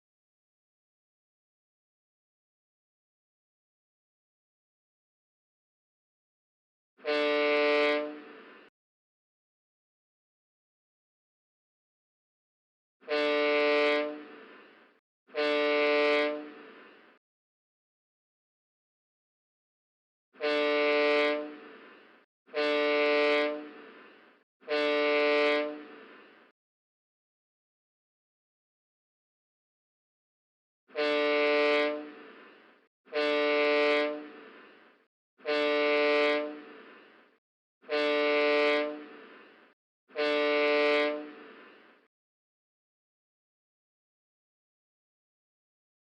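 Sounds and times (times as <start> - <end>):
ship's horn blasts: 7.0 - 8.7, 13.0 - 17.2, 20.4 - 26.5, 30.9 - 37.2, 37.8 - 42.1.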